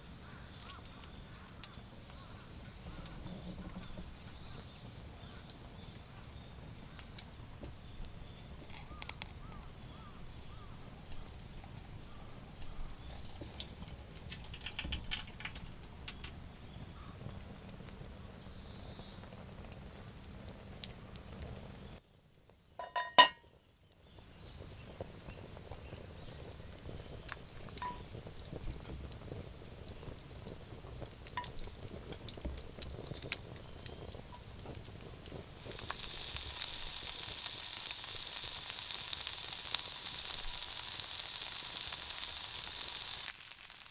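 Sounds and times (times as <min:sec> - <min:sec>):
food sizzling in a pan: 0:22.8 - 0:23.4, 0:24.6 - 0:43.9
sharp metallic clink: 0:22.8 - 0:23.4.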